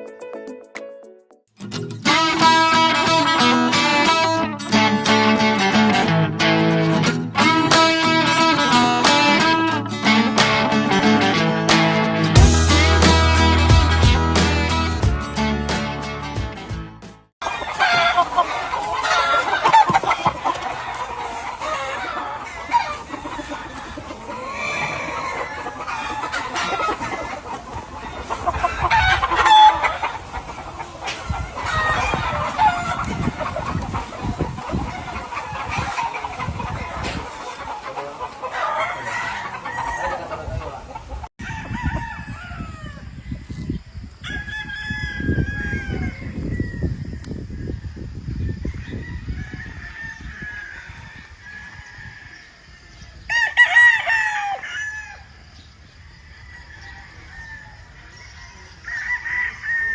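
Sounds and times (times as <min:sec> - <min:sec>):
chickens clucking: 0:02.1 - 0:14.1, 0:17.4 - 0:59.9
roosters crowing: 0:17.4 - 0:59.9.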